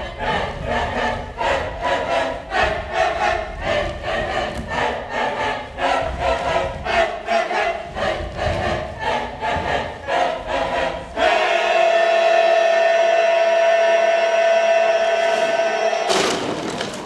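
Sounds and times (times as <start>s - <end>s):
group of voices chanting: 0.0s - 16.5s.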